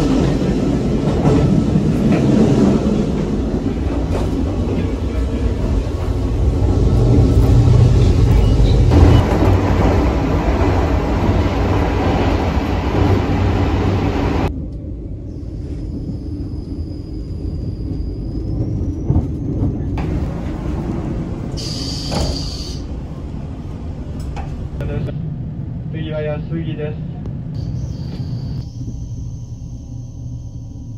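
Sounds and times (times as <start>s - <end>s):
train rumble and rattle from inside: 0.0s - 30.9s.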